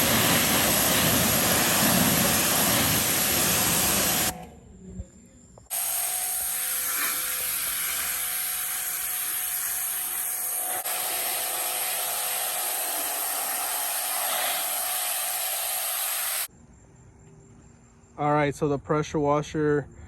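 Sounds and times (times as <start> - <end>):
pressure washer motor hum: 0.0 - 4.5, 5.7 - 16.5
pressure washer water jet hissing: 0.0 - 4.5, 5.7 - 16.5.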